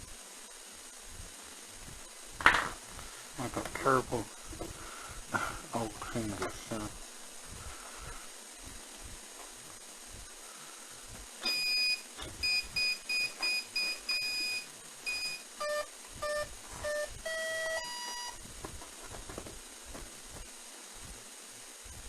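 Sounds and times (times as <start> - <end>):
electronic beeps: 11.4 - 18.4.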